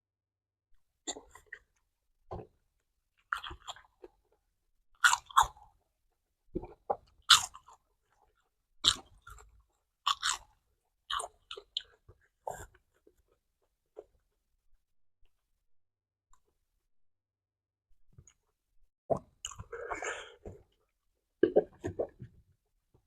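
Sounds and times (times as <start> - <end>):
crunching and chewing insects: 3.2 - 4.3, 5.0 - 5.8, 6.6 - 12.8.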